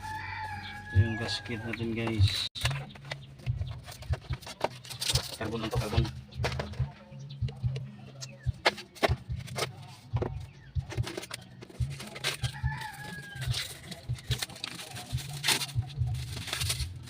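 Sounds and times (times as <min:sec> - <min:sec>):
rooster crowing: 0:00.0 - 0:01.8, 0:12.4 - 0:14.0.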